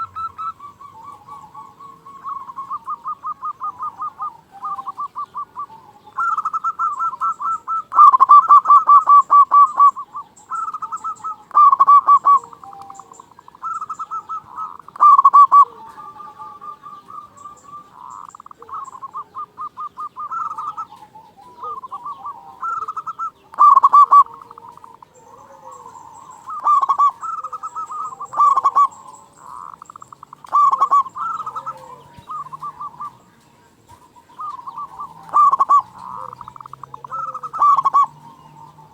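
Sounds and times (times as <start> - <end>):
dove cooing loudly: 0.0 - 38.9.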